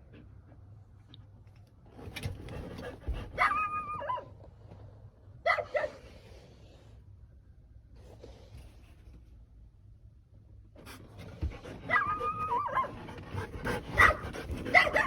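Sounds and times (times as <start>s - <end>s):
dog barking and yelping: 2.7s - 4.4s, 5.4s - 6.1s, 11.5s - 15.0s.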